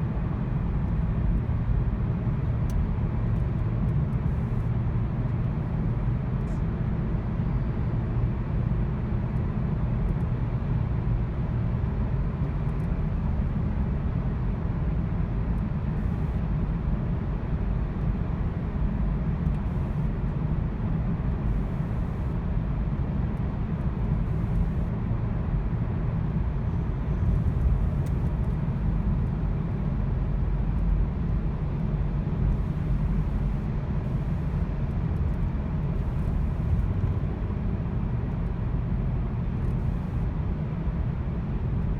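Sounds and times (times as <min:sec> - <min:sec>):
car engine rumbling: 0:15.4 - 0:41.7.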